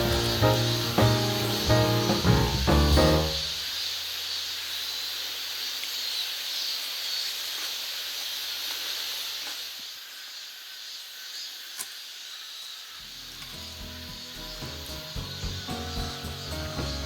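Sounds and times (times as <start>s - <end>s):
pancake sizzling in oil: 3.4s - 16.5s.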